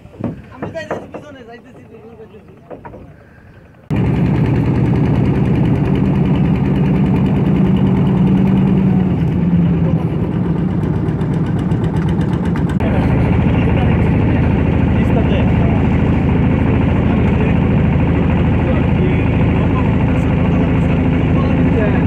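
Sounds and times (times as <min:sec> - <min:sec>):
boat engine pulsing: 0:00.0 - 0:22.0.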